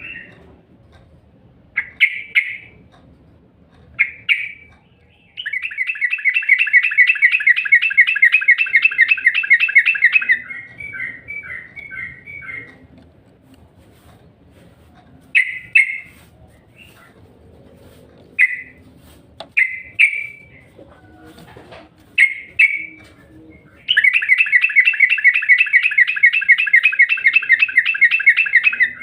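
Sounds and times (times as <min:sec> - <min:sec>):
bird trill: 0:00.0 - 0:00.4, 0:01.8 - 0:02.8, 0:04.0 - 0:12.8, 0:15.4 - 0:17.1, 0:18.4 - 0:18.8, 0:19.5 - 0:20.8, 0:22.1 - 0:29.0
bird chirps: 0:01.8 - 0:02.8, 0:04.0 - 0:12.9, 0:15.3 - 0:17.3, 0:18.4 - 0:18.9, 0:19.5 - 0:21.0, 0:22.1 - 0:29.0.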